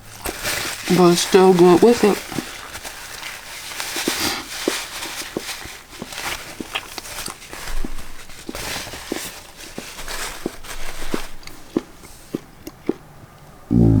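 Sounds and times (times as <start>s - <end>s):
person chewing with mouth clicks: 3.9s - 14.0s.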